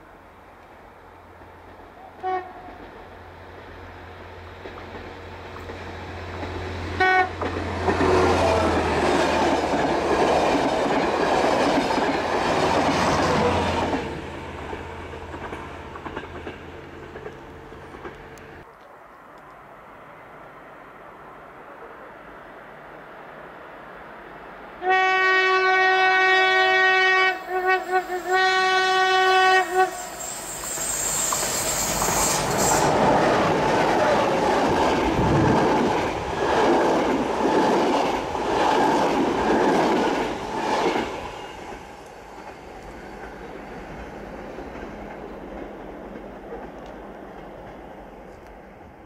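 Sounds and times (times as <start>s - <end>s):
train passing with wheel clatter: 0.0s - 49.0s
train horn blast: 2.2s - 2.8s, 6.9s - 8.6s, 24.8s - 30.6s.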